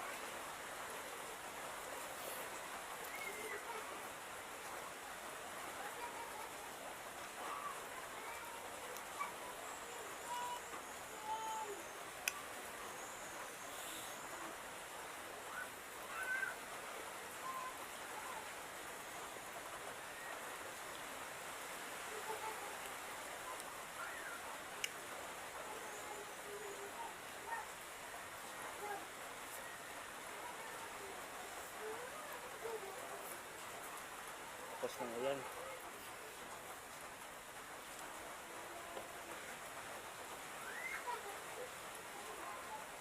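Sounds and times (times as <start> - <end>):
steady hiss: 0.0 - 43.0
small birds chirping: 2.1 - 3.8, 7.4 - 14.6, 22.2 - 27.8.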